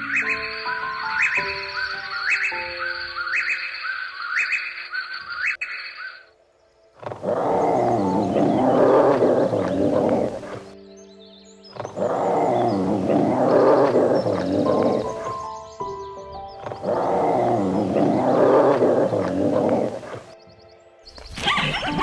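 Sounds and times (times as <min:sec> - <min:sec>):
background music: 0:00.0 - 0:22.0
large animal roaring: 0:07.0 - 0:10.7, 0:11.9 - 0:15.0, 0:16.8 - 0:20.2.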